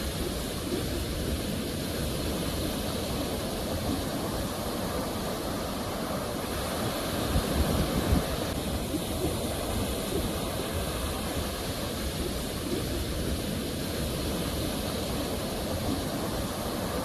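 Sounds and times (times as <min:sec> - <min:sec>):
sea waves breaking ashore: 0:00.0 - 0:17.0.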